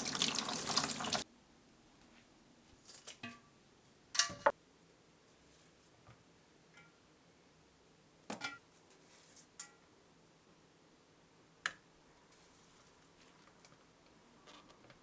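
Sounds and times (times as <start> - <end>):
water running from a tap: 0.0 - 1.2
knocks and clinks of kitchen things: 4.2 - 4.6, 8.3 - 8.7.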